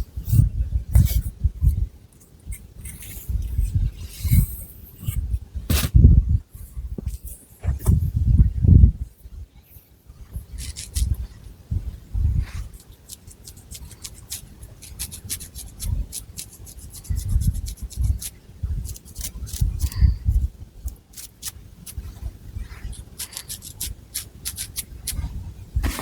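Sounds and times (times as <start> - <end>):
soft low thumps: 5.0 - 9.1
fingernails scratching hair: 22.7 - 25.2.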